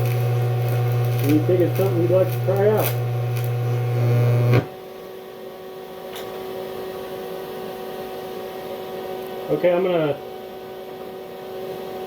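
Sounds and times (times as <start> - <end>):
welder arc buzzing: 0.0 - 4.9
welding machine electrical hum: 0.0 - 12.0.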